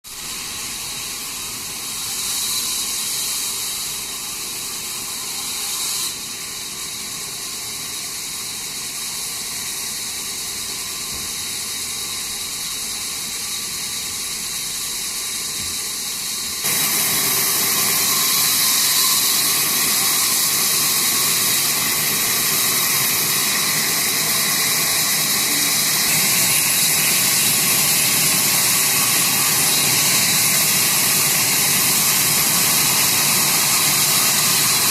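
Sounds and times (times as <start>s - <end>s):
sawmill saw whining: 0.1s - 34.9s.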